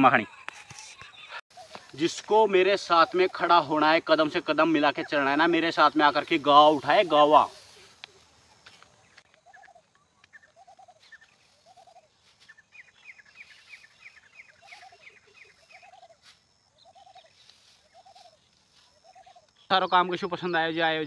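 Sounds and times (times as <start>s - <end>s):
high bird chirps: 4.6s - 21.0s.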